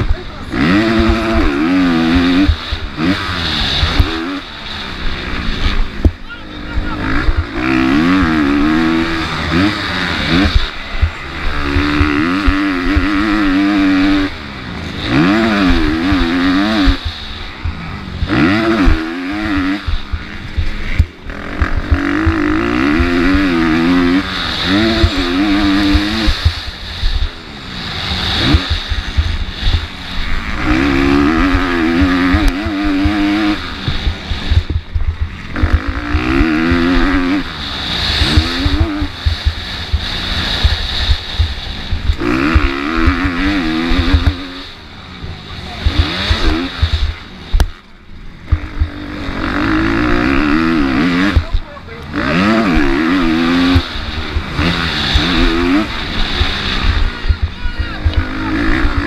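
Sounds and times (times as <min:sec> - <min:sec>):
motocross bike engine revving: 0:00.0 - 0:59.0
wind rushing: 0:00.0 - 0:59.0.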